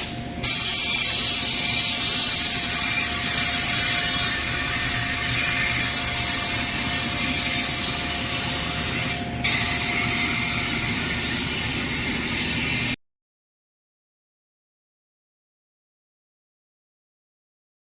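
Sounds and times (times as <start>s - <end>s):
blown air hiss: 0.0s - 13.0s
machine hum: 0.0s - 13.0s.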